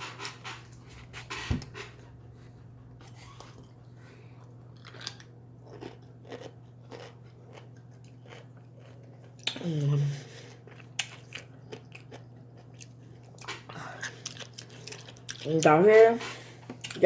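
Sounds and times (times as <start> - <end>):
steady low hum: 0.0 - 17.0
pickles being crunched: 4.7 - 9.6.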